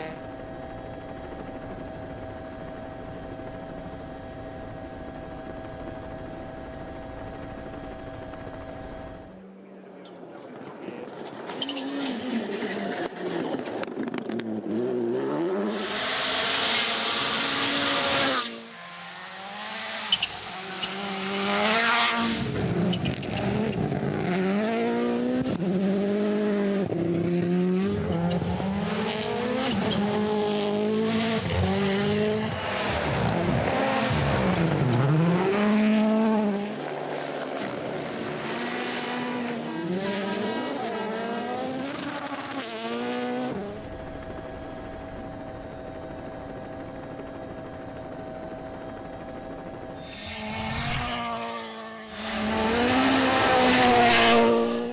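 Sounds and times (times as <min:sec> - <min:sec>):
rally car engines racing: 0:00.0 - 0:03.2, 0:07.4 - 0:46.0, 0:49.5 - 0:54.9
loud rushing noise: 0:15.2 - 0:18.6, 0:52.1 - 0:54.9.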